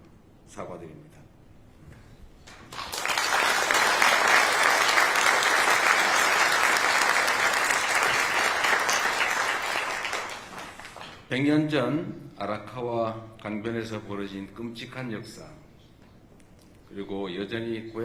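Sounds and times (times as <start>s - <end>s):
audience applauding: 2.5s - 11.2s.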